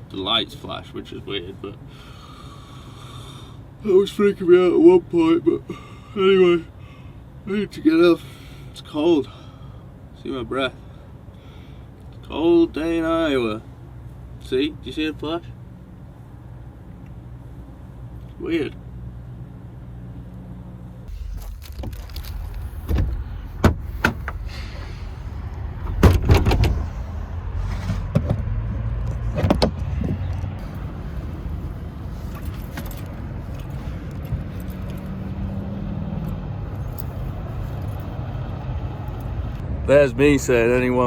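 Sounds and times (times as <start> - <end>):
trucks idling: 1.8 - 3.8, 21.1 - 28.0, 30.1 - 35.6.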